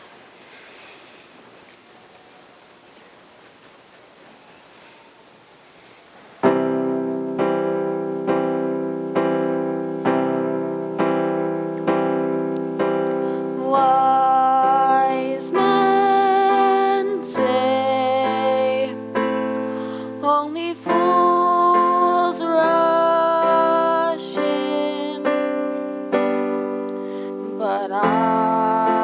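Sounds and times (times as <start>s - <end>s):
piano chords: 6.4s - 29.0s
person singing long held notes: 10.4s - 29.0s.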